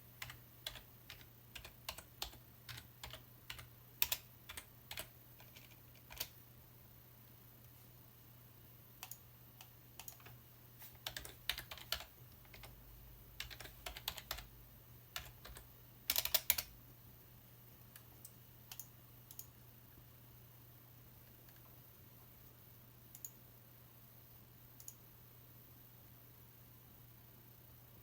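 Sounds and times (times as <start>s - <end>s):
steady low hum: 0.0s - 28.0s
typing on computer keyboard: 0.2s - 6.4s, 9.0s - 10.4s, 11.0s - 12.8s, 13.4s - 14.5s, 15.2s - 16.7s, 18.0s - 19.6s.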